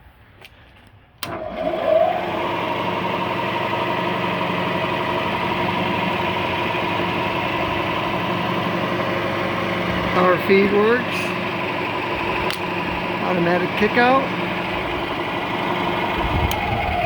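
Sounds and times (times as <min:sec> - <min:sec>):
milling machine running: 0:01.2 - 0:17.0
rising whine: 0:01.2 - 0:17.0.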